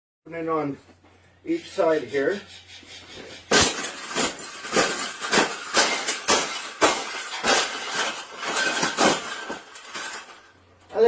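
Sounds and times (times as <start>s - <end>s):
wire cage rattling: 2.6s - 10.6s.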